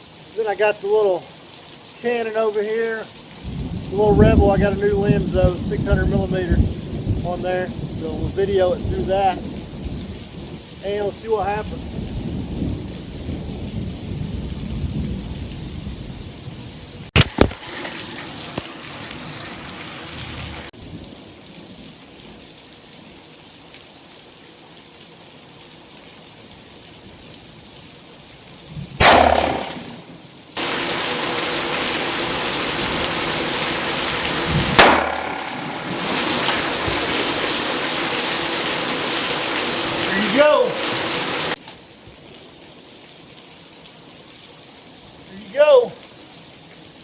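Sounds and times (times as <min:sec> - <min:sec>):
heavy rain hissing: 0:00.0 - 0:22.8, 0:28.7 - 0:42.5
rifle shots with rolling echo: 0:29.0 - 0:30.2, 0:34.8 - 0:36.2.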